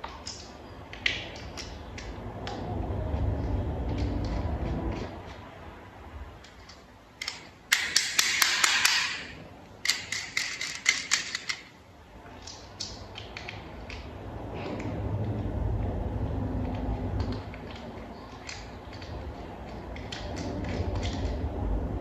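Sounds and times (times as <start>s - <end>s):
toy parts clicking together: 6.4s - 11.7s.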